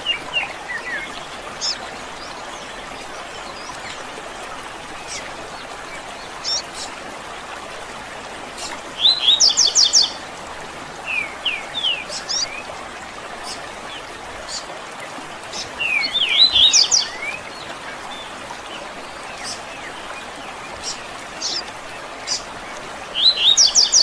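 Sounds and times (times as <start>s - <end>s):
birds singing and chirping: 8.6s - 10.2s, 15.5s - 18.3s, 23.2s - 24.0s.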